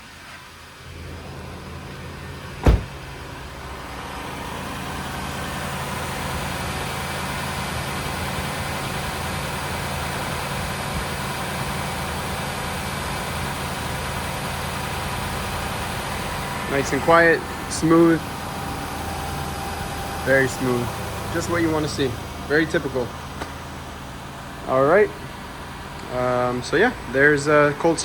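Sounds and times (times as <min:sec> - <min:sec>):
car engine idling: 0:00.5 - 0:28.0
car door shutting: 0:02.6 - 0:03.2.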